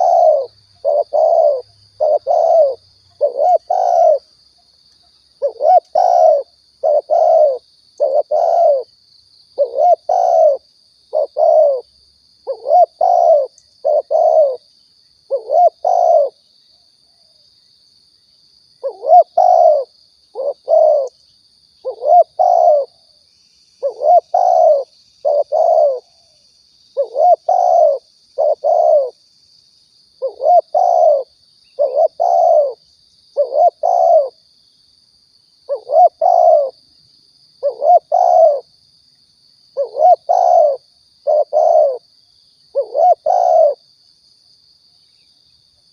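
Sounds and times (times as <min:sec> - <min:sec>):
dove cooing: 0:00.0 - 0:04.3, 0:05.4 - 0:08.9, 0:09.6 - 0:14.6, 0:15.3 - 0:16.4, 0:18.8 - 0:21.2, 0:21.8 - 0:23.0, 0:23.8 - 0:26.4, 0:27.0 - 0:29.2, 0:30.2 - 0:32.8, 0:33.4 - 0:34.4, 0:35.7 - 0:36.8, 0:37.6 - 0:38.7, 0:39.8 - 0:42.0, 0:42.7 - 0:43.8.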